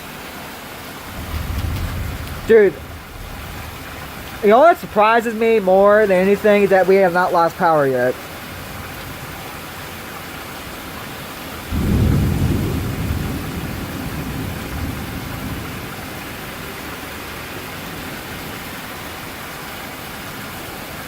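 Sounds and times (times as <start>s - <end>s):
heavy rain: 0.0s - 21.0s
thunder rolling: 1.0s - 6.9s, 8.3s - 17.2s.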